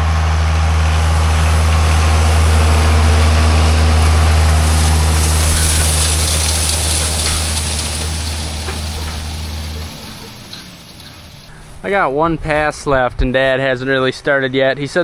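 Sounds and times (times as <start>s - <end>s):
tractor engine running: 0.0s - 12.6s
background noise: 10.2s - 15.0s.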